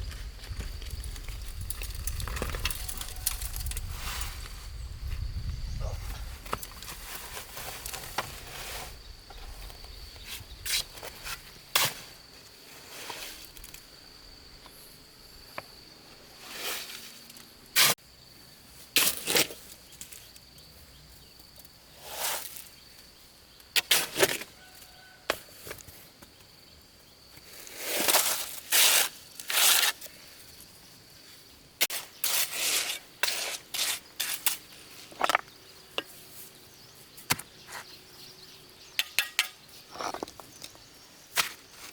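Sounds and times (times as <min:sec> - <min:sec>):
knocks scrapes and crunches: 0:00.0 - 0:13.8, 0:27.4 - 0:30.3, 0:31.8 - 0:38.0, 0:39.1 - 0:41.9.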